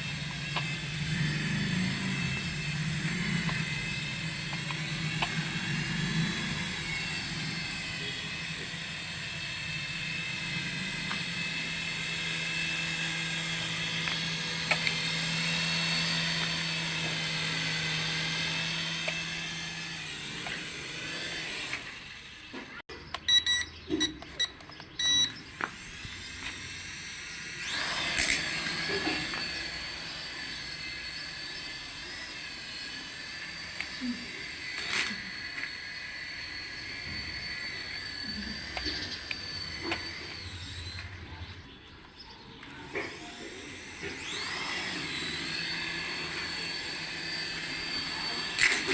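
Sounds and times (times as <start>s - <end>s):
toy helicopter motors whining: 0.0s - 48.9s
short electronic beeps: 23.1s - 25.5s.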